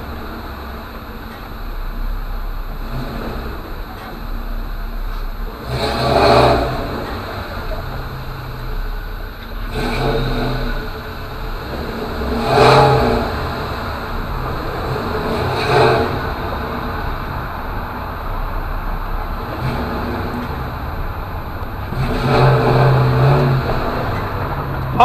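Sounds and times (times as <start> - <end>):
cars accelerating past: 0.0 - 25.0.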